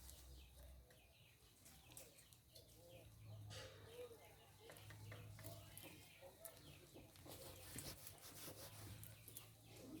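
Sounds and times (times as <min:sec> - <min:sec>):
chickens clucking: 0:00.2 - 0:10.0.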